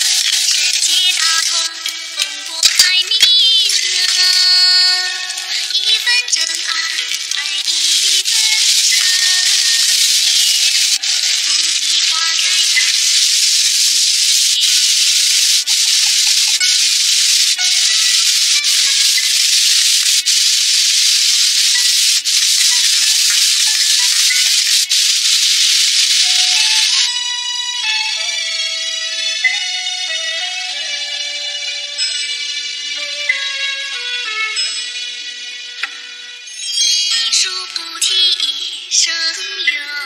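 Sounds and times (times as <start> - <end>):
sauce sizzling in a wok: 0.0 - 1.2, 5.4 - 27.1.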